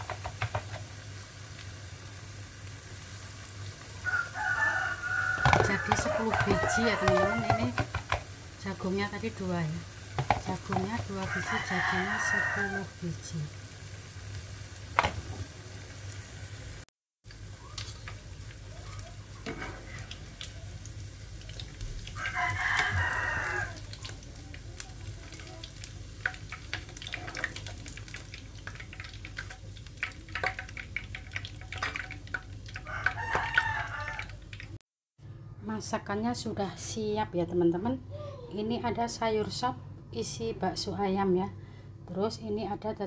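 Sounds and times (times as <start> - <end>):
fritters sizzling in hot oil: 0.0 - 34.8
rooster crowing: 4.0 - 7.8, 11.1 - 13.0, 22.1 - 23.9, 32.8 - 34.4.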